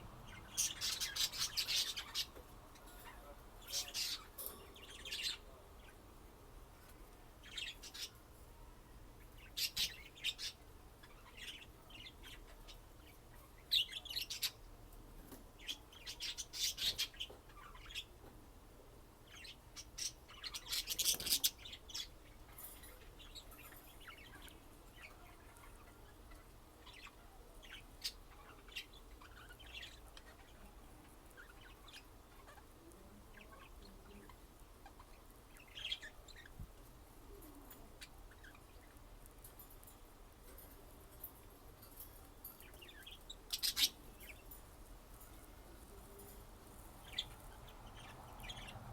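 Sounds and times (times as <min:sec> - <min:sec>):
budgerigars chirping: 0:00.3 - 0:02.4, 0:42.9 - 0:44.5, 0:47.0 - 0:48.9.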